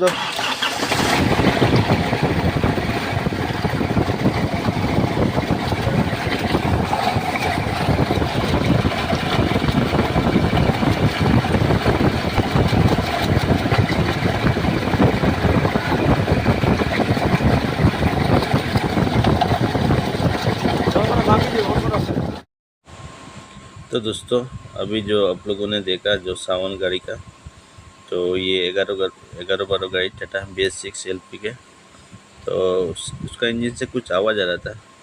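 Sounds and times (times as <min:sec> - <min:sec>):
diesel truck engine running: 0:00.0 - 0:22.5.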